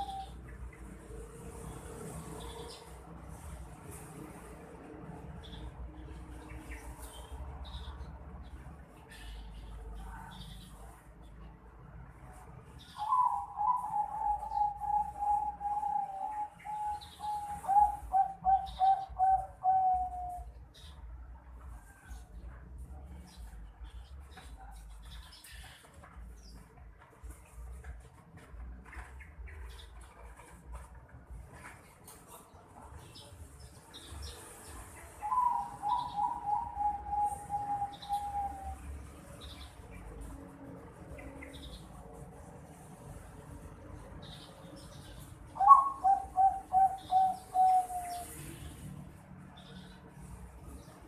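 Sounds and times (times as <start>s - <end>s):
dove cooing: 0.0s - 0.4s, 13.0s - 20.5s, 35.2s - 38.8s, 45.6s - 48.4s.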